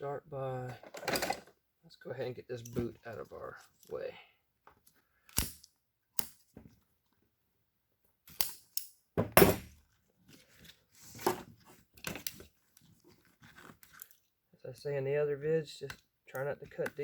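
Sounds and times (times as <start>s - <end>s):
thump: 9.2s - 9.7s.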